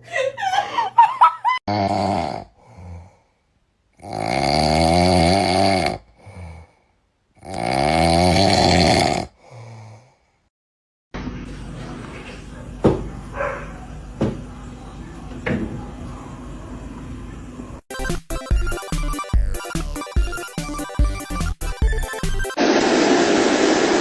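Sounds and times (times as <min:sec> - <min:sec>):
loud rasping snoring: 0:01.7 - 0:03.2, 0:04.0 - 0:06.8, 0:07.4 - 0:10.1
quiet breaths: 0:02.5 - 0:03.6.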